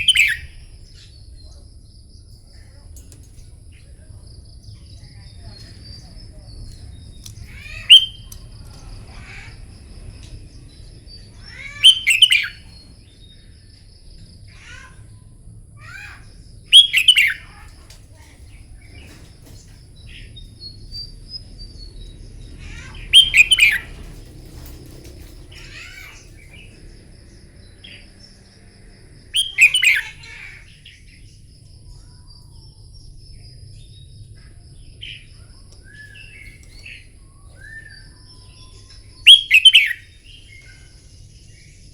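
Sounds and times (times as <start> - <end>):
bird singing whistled notes: 0.0 - 1.0, 7.4 - 8.5, 11.5 - 12.9, 16.7 - 17.5, 23.0 - 24.0, 29.4 - 30.2, 35.8 - 40.8
soft bird chirps: 0.0 - 41.9.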